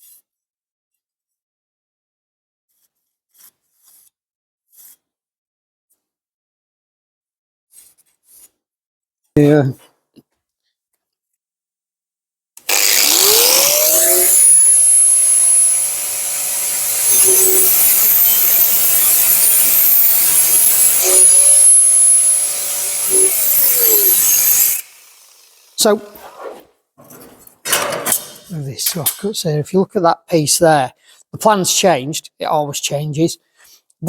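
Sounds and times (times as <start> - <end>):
angle grinder cutting steel: 12.6 - 29.3.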